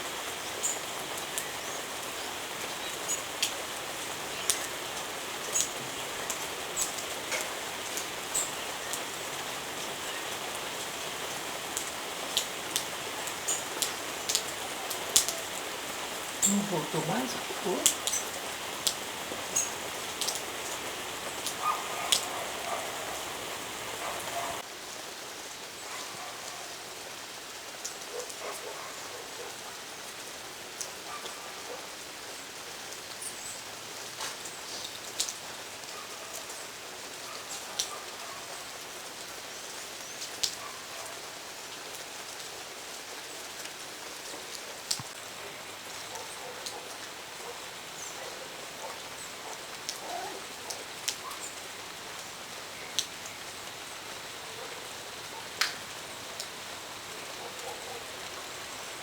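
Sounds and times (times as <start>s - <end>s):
steady hiss: 0.0s - 25.6s
sharp ticks and pops: 55.6s - 56.5s.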